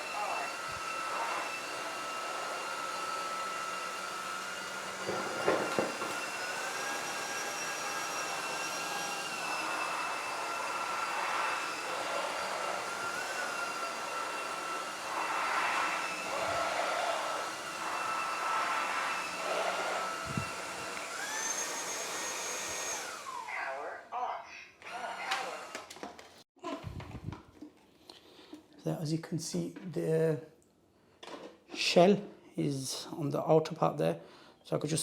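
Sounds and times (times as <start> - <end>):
slurping suction: 0.0 - 23.4
floor cleaner motor whine: 0.0 - 23.9, 24.8 - 26.0.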